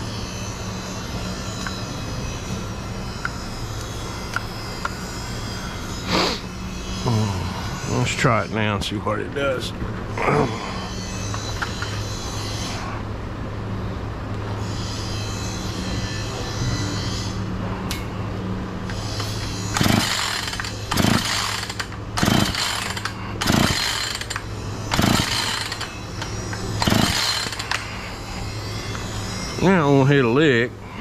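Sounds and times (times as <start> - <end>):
low hum: 0.0 - 31.0
chainsaw starter cord yanks: 19.7 - 27.9.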